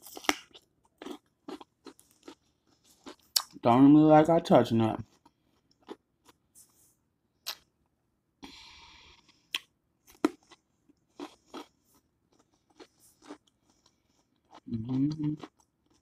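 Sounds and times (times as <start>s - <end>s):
crunching cucumber bites: 0.0s - 3.9s, 14.5s - 16.0s.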